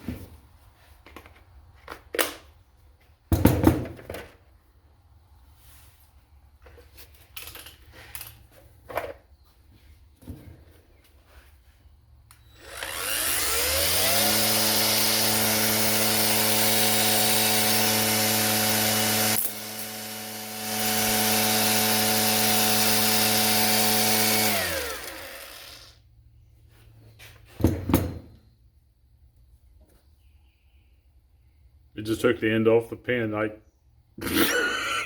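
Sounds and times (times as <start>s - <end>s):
angle grinder whine: 12.3s - 26.0s, 34.2s - 35.0s.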